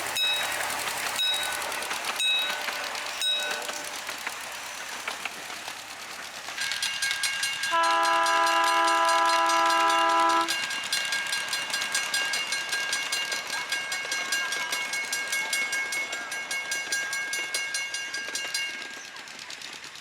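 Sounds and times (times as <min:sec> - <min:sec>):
train rail clatter: 0:00.0 - 0:20.0
train whistle: 0:07.7 - 0:10.6.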